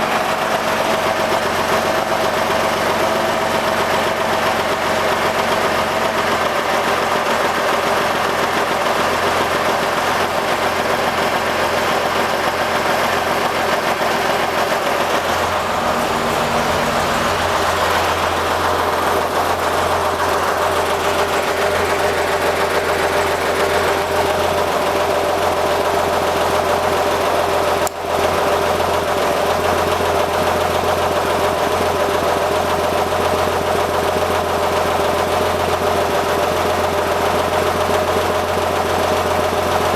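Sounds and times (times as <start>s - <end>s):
car engine running steadily: 0.0s - 39.9s.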